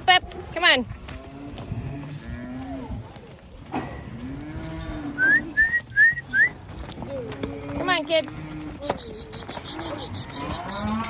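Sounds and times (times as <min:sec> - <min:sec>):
calves mooing: 0:04.0 - 0:05.8, 0:07.0 - 0:11.0.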